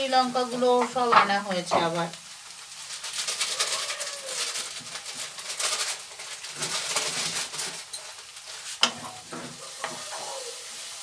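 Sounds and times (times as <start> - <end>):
masala sizzling in a pan: 0.0 - 11.0
wooden spatula scraping a pan: 3.0 - 11.0.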